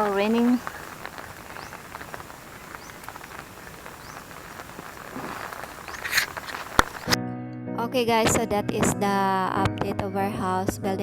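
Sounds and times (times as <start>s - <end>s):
rain falling: 0.0s - 7.2s
raindrops ticking on surfaces: 0.0s - 7.2s.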